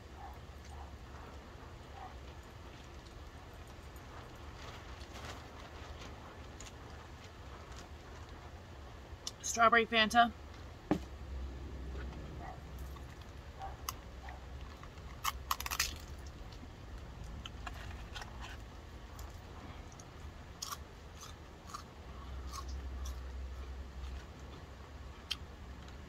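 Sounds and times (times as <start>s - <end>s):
person chewing and crunching food: 0.0s - 8.4s, 11.9s - 26.0s
small clicks and crackles: 0.6s - 8.5s.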